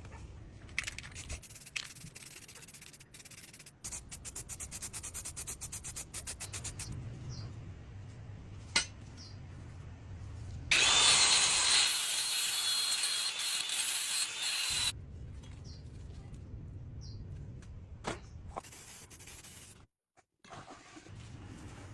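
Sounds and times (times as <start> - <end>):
sanding rusty metal: 1.2 - 6.9, 10.7 - 14.9.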